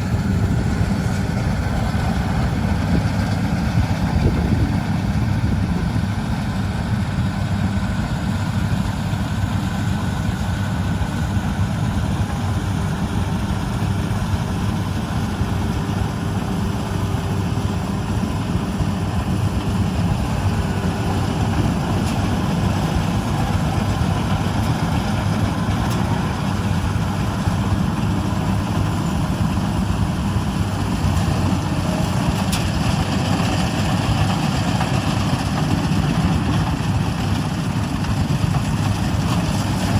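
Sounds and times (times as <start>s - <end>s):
combine harvester engine droning: 0.0s - 39.9s.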